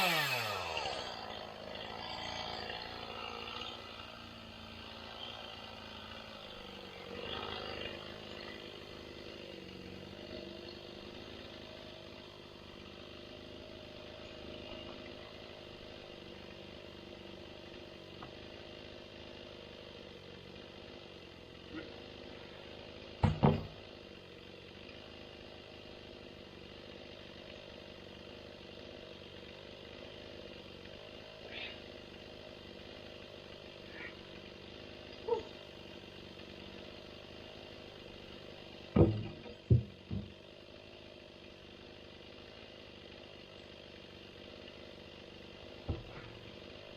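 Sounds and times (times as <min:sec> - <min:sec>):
tractor engine running: 0:00.0 - 0:46.9
sharp knocks: 0:39.0 - 0:40.3.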